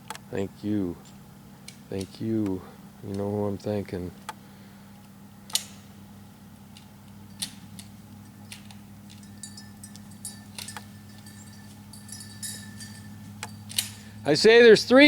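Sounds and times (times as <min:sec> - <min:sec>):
steady low hum: 0:00.0 - 0:15.0
metallic clinking and jingling: 0:06.8 - 0:14.5.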